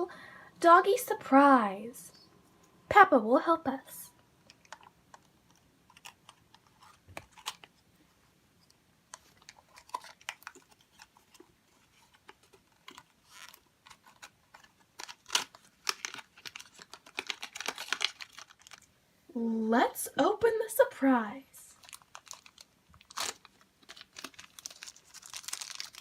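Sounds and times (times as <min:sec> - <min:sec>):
packaging crinkling: 0:04.4 - 0:07.8, 0:09.1 - 0:18.9, 0:21.7 - 0:26.0.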